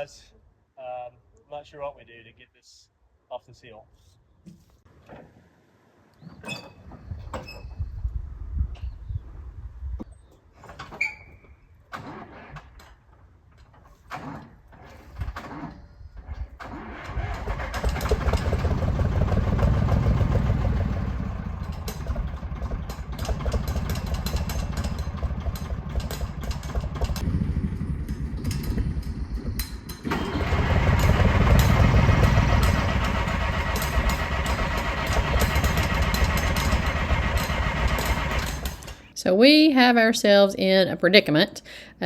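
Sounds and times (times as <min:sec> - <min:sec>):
diesel tractor engine running unevenly: 0:16.7 - 0:39.1.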